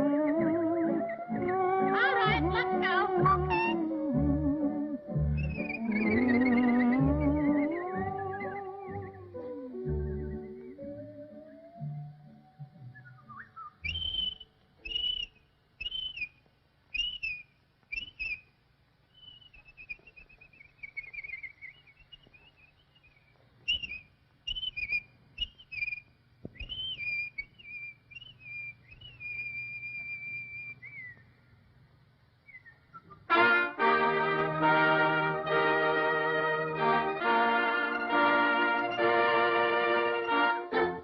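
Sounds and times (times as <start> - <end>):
whistled bird calls: 0.0 - 2.4, 3.2 - 31.3, 32.4 - 33.3
faint low hum: 0.0 - 41.0.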